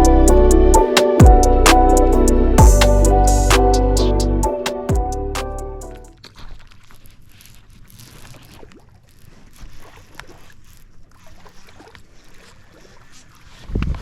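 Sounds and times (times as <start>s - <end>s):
water lapping at hull: 6.2s - 14.0s.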